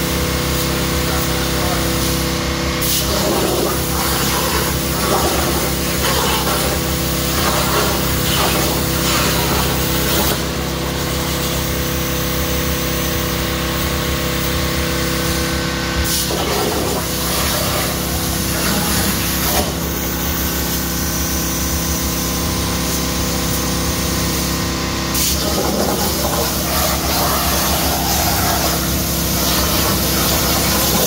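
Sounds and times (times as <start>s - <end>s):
spray gun hissing: 25.2s - 31.0s.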